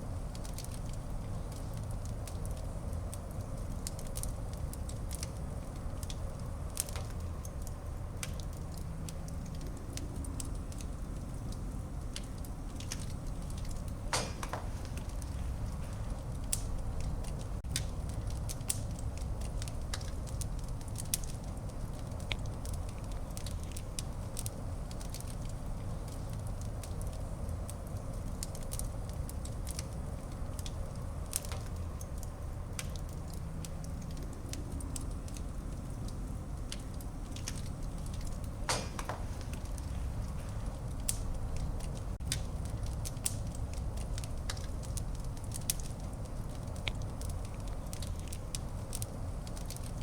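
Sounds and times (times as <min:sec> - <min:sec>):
fire crackling and snapping: 0:00.0 - 0:50.0
low rumble of flames: 0:00.0 - 0:50.0
loud fire pop: 0:14.1 - 0:15.1, 0:38.6 - 0:39.6.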